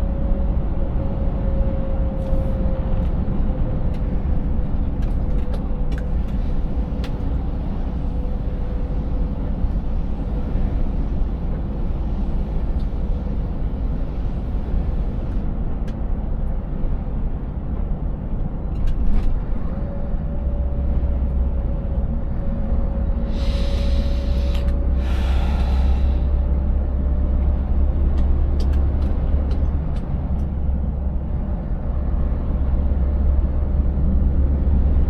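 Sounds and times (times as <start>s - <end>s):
truck engine rumbling: 0.0s - 35.0s.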